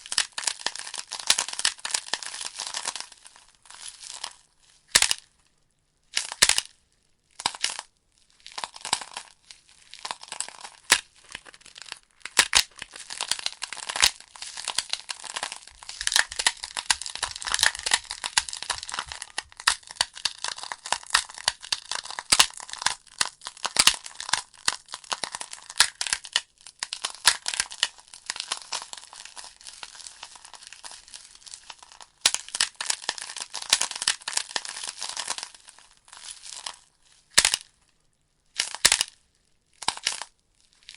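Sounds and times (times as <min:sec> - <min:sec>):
burning wood crackling and popping: 0:09.4 - 0:37.6.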